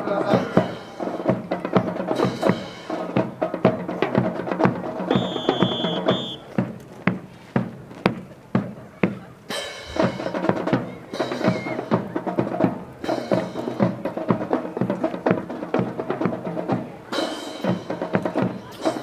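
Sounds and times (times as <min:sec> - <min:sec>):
held tones: 0:05.1 - 0:06.4.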